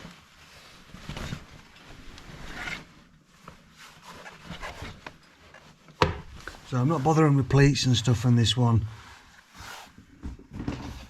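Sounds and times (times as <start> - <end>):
sheet rustling and rubbing: 0.0 - 7.6, 8.9 - 10.2.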